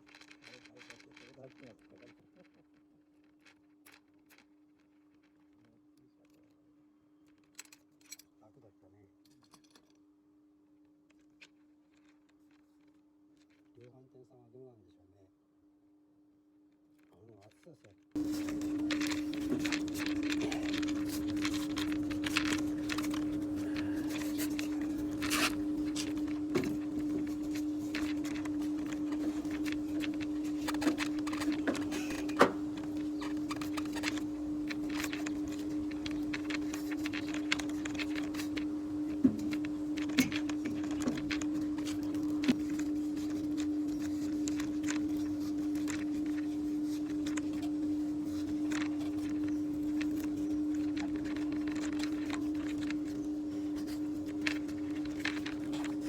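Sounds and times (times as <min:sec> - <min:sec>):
steady motor hum: 0:00.0 - 0:06.2, 0:18.1 - 0:56.0
clicks and knocks of tools: 0:09.2 - 0:10.0.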